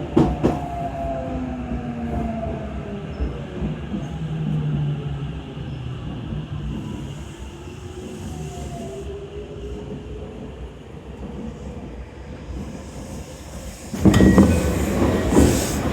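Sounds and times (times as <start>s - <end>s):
train wheels rumbling: 9.6s - 15.9s.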